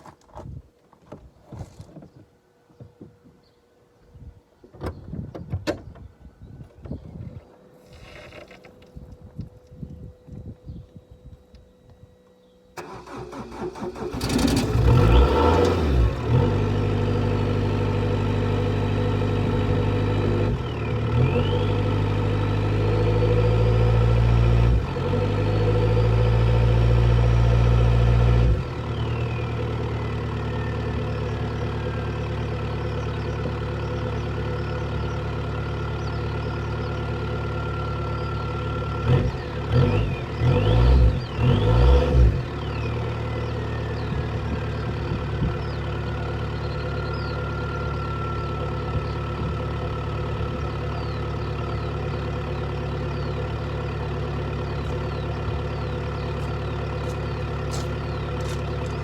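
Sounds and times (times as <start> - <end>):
engine revving: 12.8 - 31.9, 37.4 - 49.5, 54.4 - 59.0
car engine idling: 12.8 - 41.6, 42.3 - 59.0.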